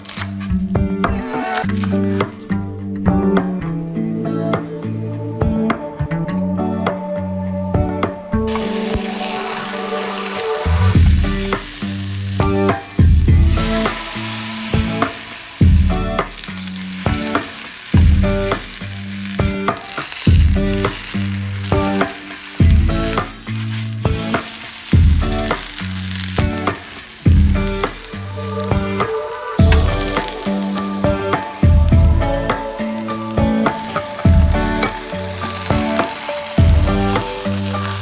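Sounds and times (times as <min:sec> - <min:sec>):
omelet sizzling in a pan: 0:00.0 - 0:00.7, 0:01.3 - 0:02.4, 0:08.5 - 0:38.0
background music with a beat: 0:07.8 - 0:11.8, 0:12.4 - 0:16.4, 0:26.4 - 0:38.0.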